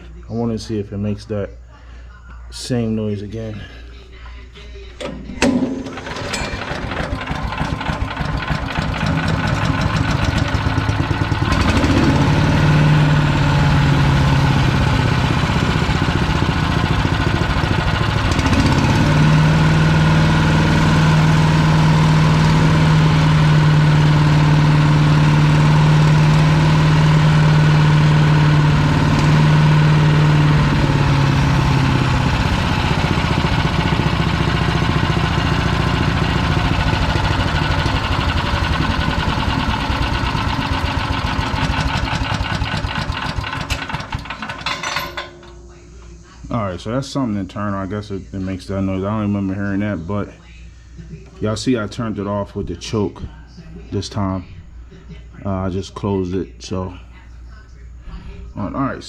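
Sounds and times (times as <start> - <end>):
wood chipper engine running: 5.0 - 46.1.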